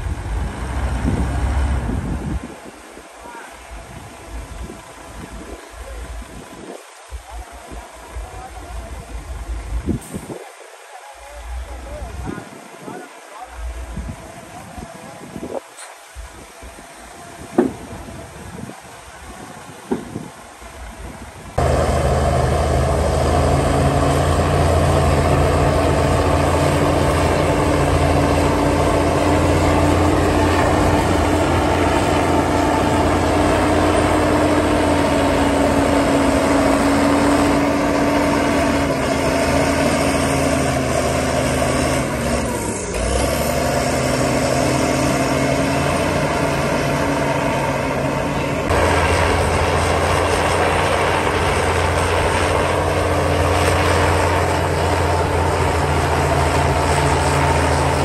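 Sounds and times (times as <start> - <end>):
heavy diesel engine running: 0.0 - 2.2, 21.6 - 58.0.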